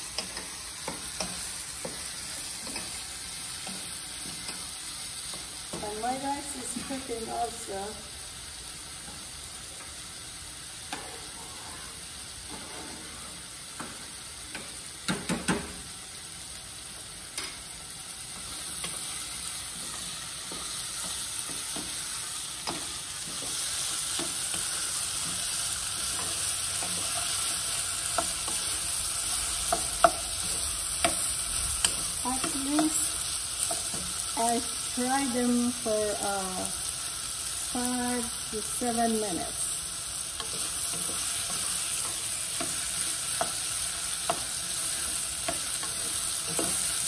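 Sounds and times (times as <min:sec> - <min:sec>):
beans sizzling in oil: 0:00.0 - 0:47.0
wooden spoon scraping pan: 0:11.0 - 0:13.4.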